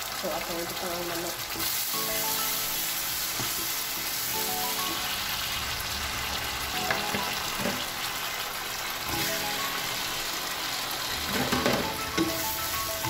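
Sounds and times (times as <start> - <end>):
curry paste sizzling in oil: 0.0 - 13.0
spatula knocking pan: 11.3 - 12.5.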